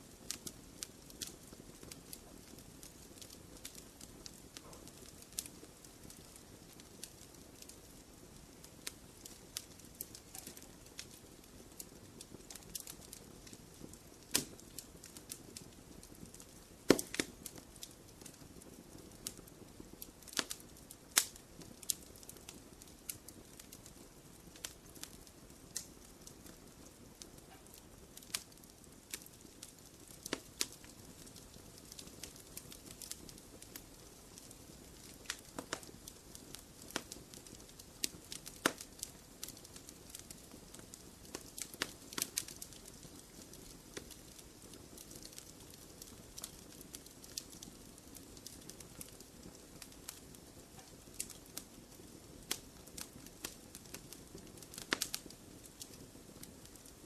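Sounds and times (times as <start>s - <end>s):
low steady hiss: 0.0s - 57.0s
wood fire crackling: 0.0s - 57.0s.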